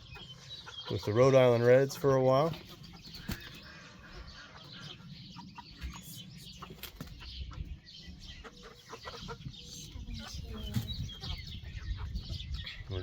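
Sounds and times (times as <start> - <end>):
chickens clucking: 0.0 - 13.0
wings flapping: 3.1 - 3.6.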